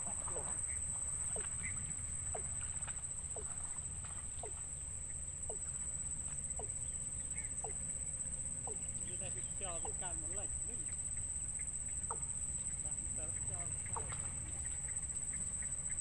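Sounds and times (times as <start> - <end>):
birds peeping: 0.0 - 16.0.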